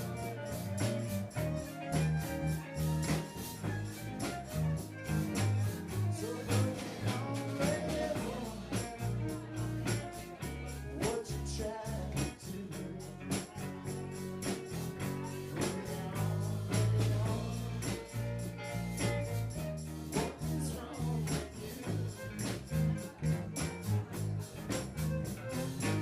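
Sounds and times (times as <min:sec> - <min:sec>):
bass line: 0:00.0 - 0:26.0
live funk band playing: 0:00.0 - 0:26.0
steady drum beat: 0:00.0 - 0:26.0
person singing: 0:04.1 - 0:24.7.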